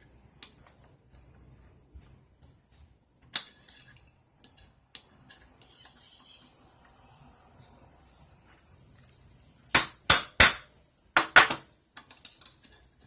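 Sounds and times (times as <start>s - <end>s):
small metal parts clicking: 11.3s - 12.9s.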